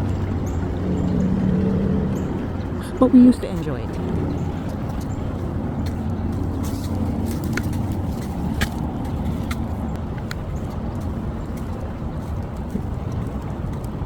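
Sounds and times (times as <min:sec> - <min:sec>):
steady low rumble: 0:00.0 - 0:14.0
footsteps on a path: 0:04.3 - 0:14.0.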